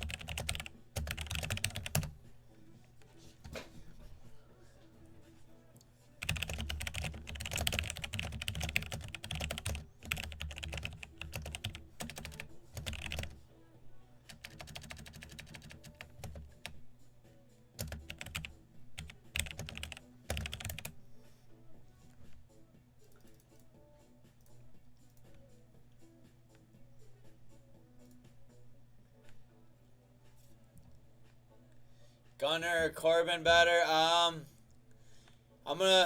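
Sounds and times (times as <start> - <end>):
typing on a keyboard: 0.0 - 2.2, 6.2 - 13.4, 14.3 - 16.8, 17.8 - 21.0.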